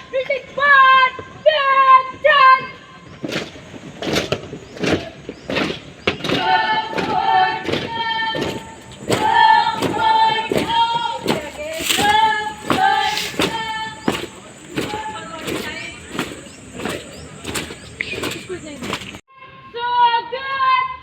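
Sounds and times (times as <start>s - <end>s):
boots stamping in marching rhythm: 0.8s - 19.2s
voices calling drill commands: 6.2s - 19.2s.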